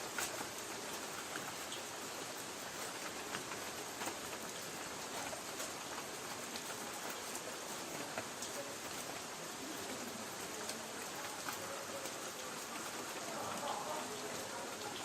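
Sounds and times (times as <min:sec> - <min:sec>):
rain on a tin roof: 0:00.0 - 0:15.0.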